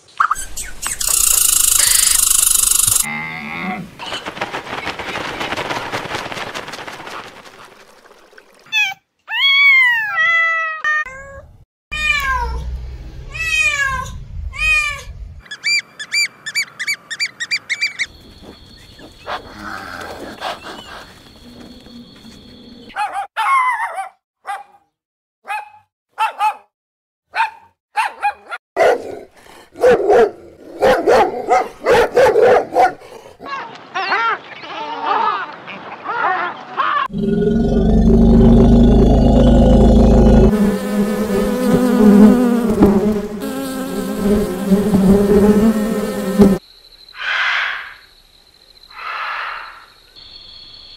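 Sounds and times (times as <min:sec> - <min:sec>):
high animal calls: 0:00.9 - 0:03.7
steady high tone: 0:01.0 - 0:03.1, 0:37.1 - 0:41.6
dogs barking and yelping: 0:22.9 - 0:24.7, 0:27.4 - 0:29.2, 0:29.8 - 0:33.1.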